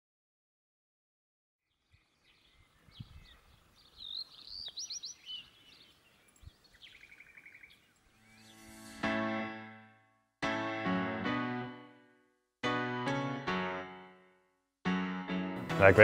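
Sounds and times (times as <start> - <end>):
faint birdsong with rapid trill: 1.6 - 9.0.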